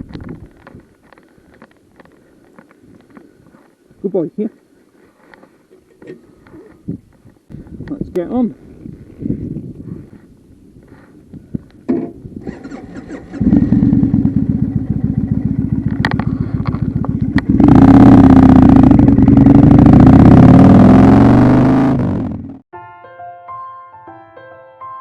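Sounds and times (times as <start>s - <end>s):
motorcycle engine revving: 12.4s - 22.6s.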